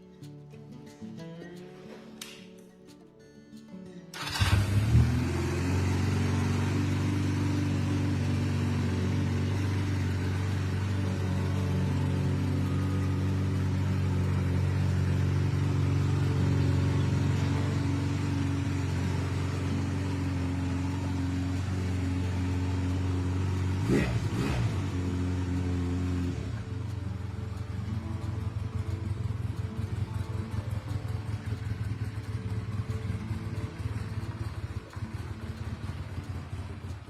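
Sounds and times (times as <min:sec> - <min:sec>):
motorcycle engine idling: 0:04.2 - 0:37.0.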